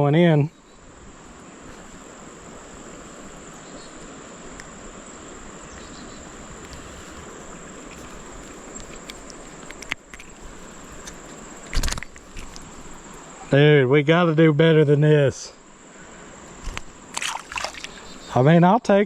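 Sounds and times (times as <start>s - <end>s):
background hiss: 0.0s - 19.0s
insects droning: 0.0s - 19.0s
sharp clicks: 11.0s - 12.7s.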